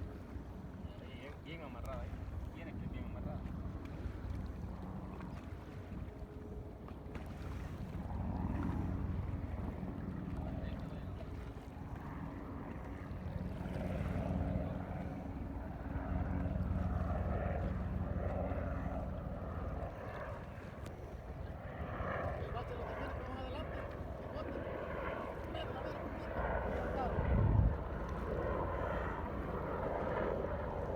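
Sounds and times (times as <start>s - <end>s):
motorboat engine rumble: 0.0s - 30.9s
wind buffeting microphone: 1.9s - 30.9s.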